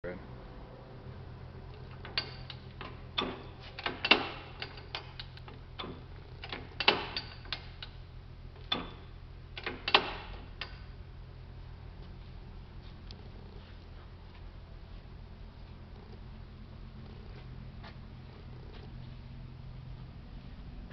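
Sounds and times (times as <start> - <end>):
metallic clicks and clanks: 1.7 - 8.0, 8.6 - 11.0.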